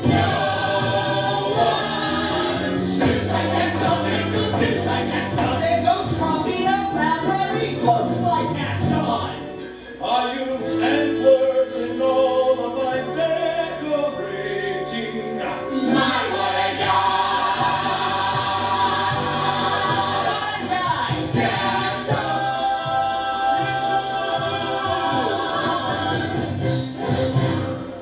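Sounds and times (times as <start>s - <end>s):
chorus singing with band: 0.0s - 5.9s, 14.8s - 27.6s
walking bass line: 0.0s - 9.0s.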